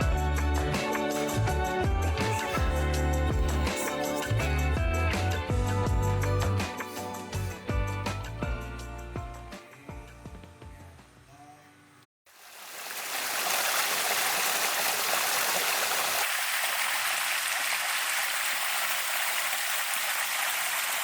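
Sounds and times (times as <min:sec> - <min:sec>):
faint music: 0:00.0 - 0:12.0
running water rushing: 0:12.3 - 0:21.0.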